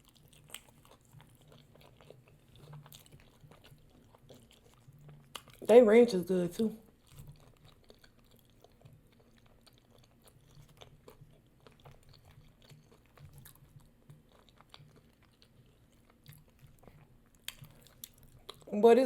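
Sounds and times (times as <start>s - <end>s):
person chewing food: 0.0s - 5.7s, 6.8s - 18.7s
wet mouth clicks: 16.3s - 18.6s.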